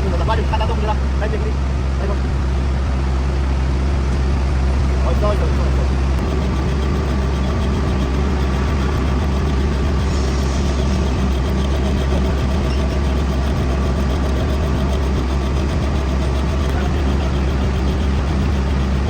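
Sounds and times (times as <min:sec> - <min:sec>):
metal lathe running: 0:04.0 - 0:19.0.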